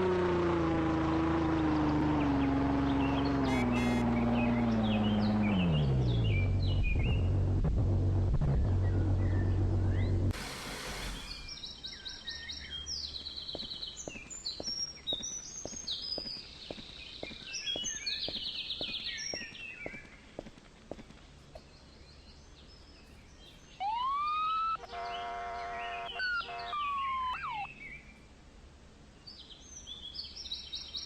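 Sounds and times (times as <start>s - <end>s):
burst of noise: 10.3s - 11.6s
birds chirping and singing: 21.5s - 28.2s.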